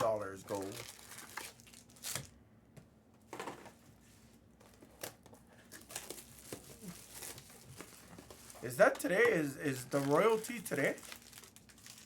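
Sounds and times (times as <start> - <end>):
plastic wrapping crinkling: 0.1 - 2.3, 5.0 - 12.0.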